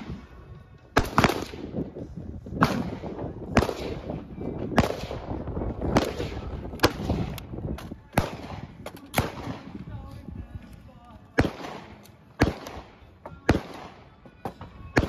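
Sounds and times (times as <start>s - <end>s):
gunshots with ringing tail: 0.9s - 1.8s, 2.5s - 7.5s, 8.1s - 9.8s, 11.4s - 14.2s.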